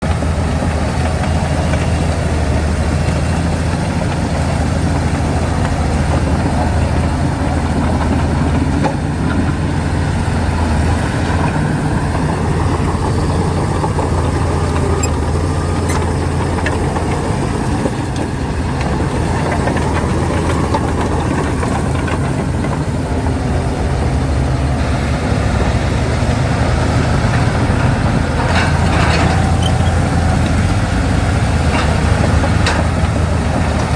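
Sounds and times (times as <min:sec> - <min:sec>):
bulldozer diesel engine droning: 0:00.0 - 0:33.9
light metallic rattling: 0:28.4 - 0:33.6.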